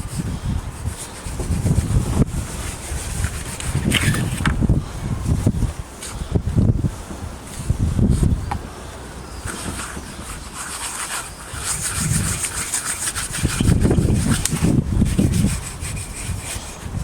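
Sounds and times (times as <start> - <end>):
cloth rubbing on wood: 0.7 - 4.5, 9.4 - 16.9.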